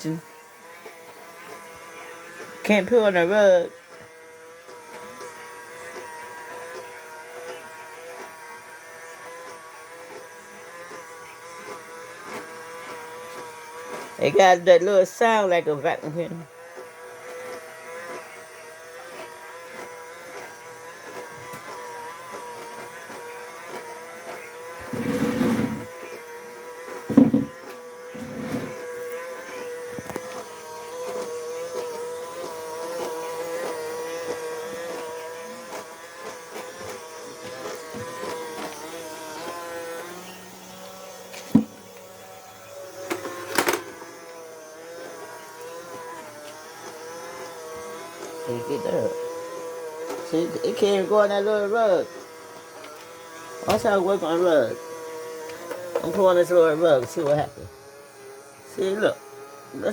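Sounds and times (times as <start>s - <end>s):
robot vacuum motor whine: 0.0s - 59.9s
knocks: 27.1s - 27.6s, 41.5s - 41.8s.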